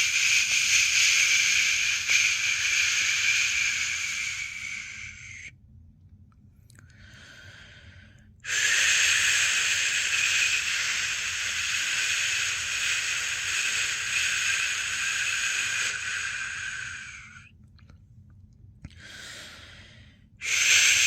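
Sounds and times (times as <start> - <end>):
person shushing: 0.0 - 5.5, 8.5 - 17.4, 20.4 - 21.0.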